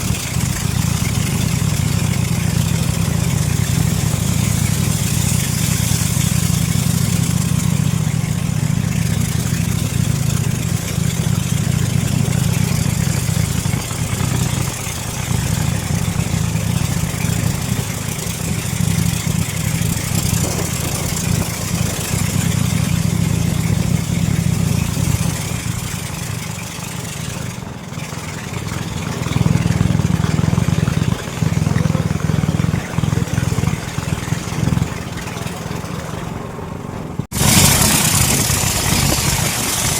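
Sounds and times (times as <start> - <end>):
outboard motor running: 0.0 - 39.9
hiss: 37.3 - 39.9.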